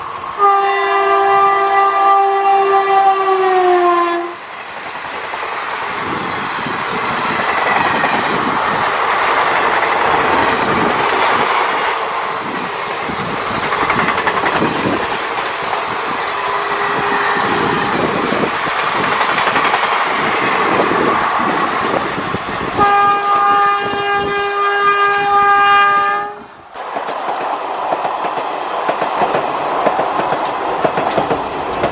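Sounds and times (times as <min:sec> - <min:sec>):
train wheels rumbling on rails: 0:00.0 - 0:31.9
locomotive horn blast: 0:00.4 - 0:04.4, 0:16.4 - 0:18.0, 0:22.8 - 0:26.5.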